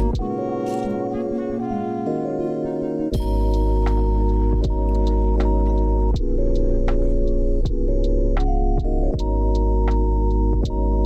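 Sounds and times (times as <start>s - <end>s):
deep bass: 0.0s - 0.4s, 3.2s - 11.0s
keyboard chords: 0.0s - 11.0s.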